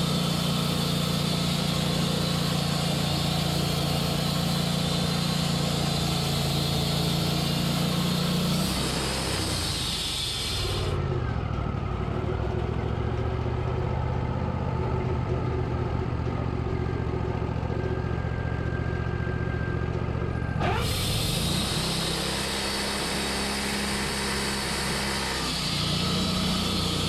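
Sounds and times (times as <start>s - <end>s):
engine running steadily: 0.0s - 27.0s.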